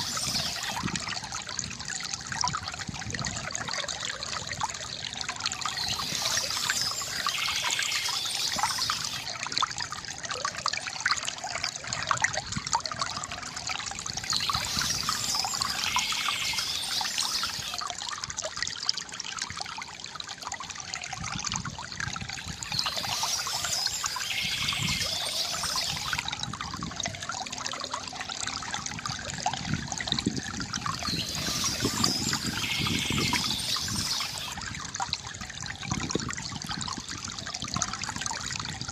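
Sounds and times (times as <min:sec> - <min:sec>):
water splashing hiss: 0:00.0 - 0:00.9, 0:05.7 - 0:09.3, 0:14.2 - 0:17.8, 0:22.4 - 0:26.3, 0:31.0 - 0:34.6
fountain water trickling into basin: 0:00.0 - 0:38.9.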